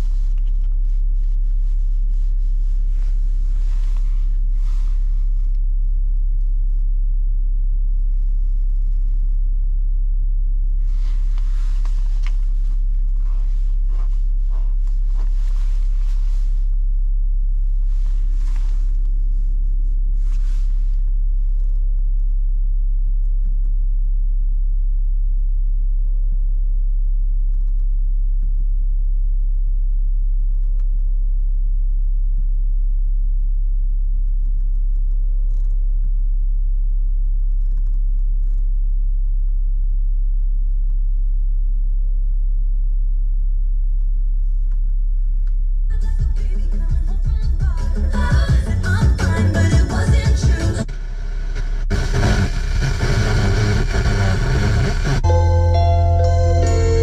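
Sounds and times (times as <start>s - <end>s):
rustling noise: 0.0s - 6.8s, 8.0s - 9.6s, 10.6s - 22.3s.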